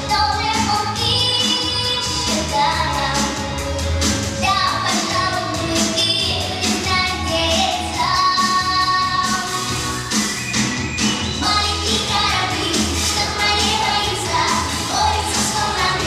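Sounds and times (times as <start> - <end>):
high voice singing: 11.4 - 16.0.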